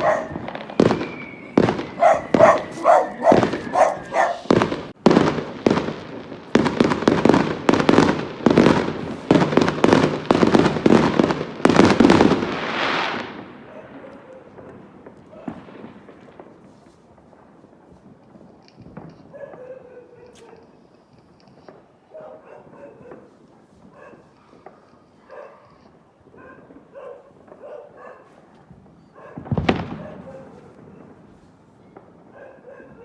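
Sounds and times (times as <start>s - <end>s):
fireworks bangs: 0.0s - 19.3s, 28.4s - 32.3s
fireworks crackling: 0.0s - 19.3s, 29.4s - 32.2s.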